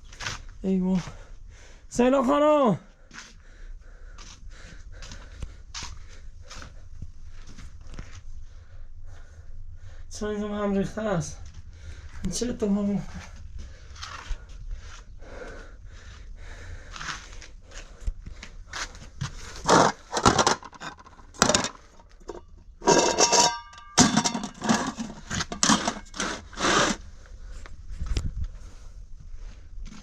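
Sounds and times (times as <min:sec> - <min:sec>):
objects scraped and knocked by hand: 0:19.6 - 0:27.0.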